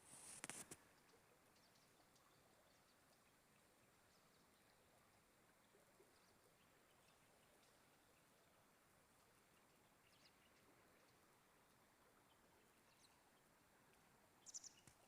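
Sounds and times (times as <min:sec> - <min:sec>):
distant bird chirps: 0:09.2 - 0:15.0.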